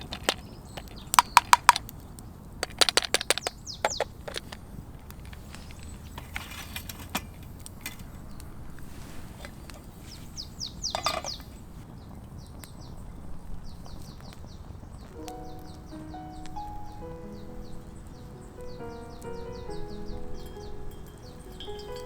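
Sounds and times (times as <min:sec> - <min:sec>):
sharp clicks: 0:00.0 - 0:05.9, 0:15.1 - 0:22.0
small birds chirping: 0:00.0 - 0:22.0.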